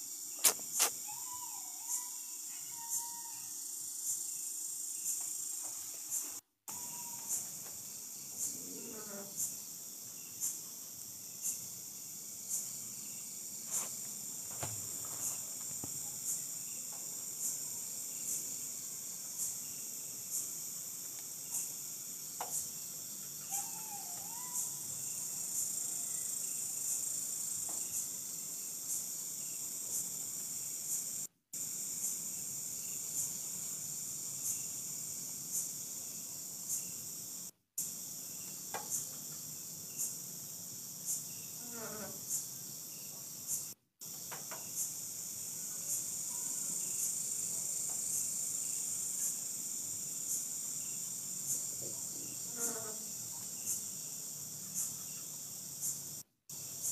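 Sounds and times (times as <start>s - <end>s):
crickets chirping: 0.0s - 56.9s.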